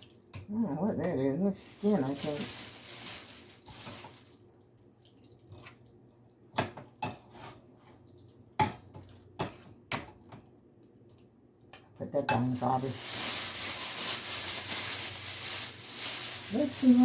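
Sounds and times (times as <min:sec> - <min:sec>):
dishes clattering in sink: 0:06.6 - 0:07.6, 0:08.6 - 0:10.5.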